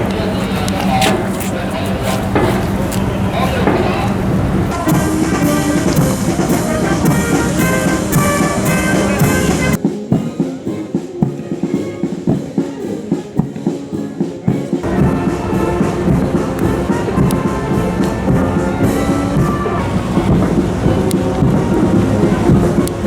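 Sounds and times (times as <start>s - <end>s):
brass band playing: 0.0s - 23.0s
drum strokes: 0.0s - 23.0s.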